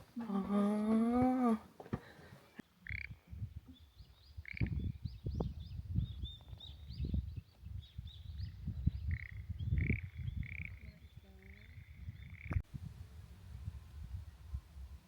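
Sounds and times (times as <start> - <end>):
small birds chirping: 2.5 - 12.6.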